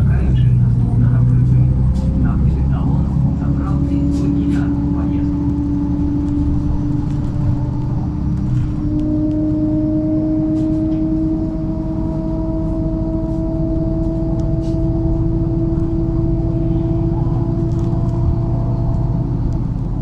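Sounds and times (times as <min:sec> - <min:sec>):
bus engine rumble: 0:00.0 - 0:20.0
rising whine: 0:00.0 - 0:20.0.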